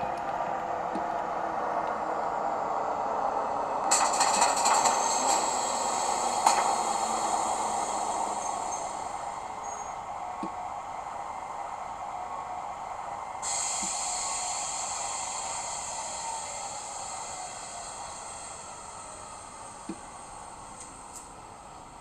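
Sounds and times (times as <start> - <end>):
model locomotive whirring: 0.0 - 22.0
high hiss: 3.8 - 11.8, 12.7 - 22.0.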